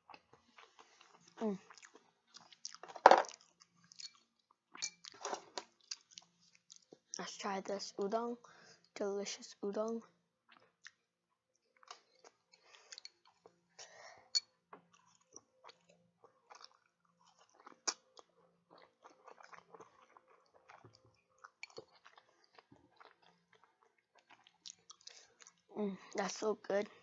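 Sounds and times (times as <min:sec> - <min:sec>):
wet chewing and mouth smacks: 0:00.1 - 0:07.2, 0:10.5 - 0:13.8, 0:14.8 - 0:25.7.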